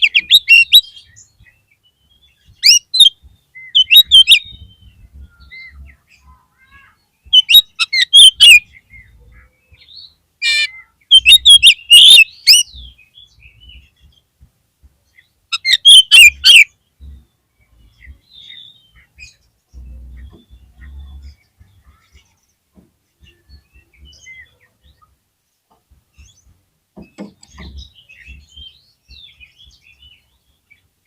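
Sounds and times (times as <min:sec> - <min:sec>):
bird chattering and whistling: 0:00.0 - 0:01.3, 0:02.6 - 0:09.2, 0:09.8 - 0:13.0, 0:15.5 - 0:17.2.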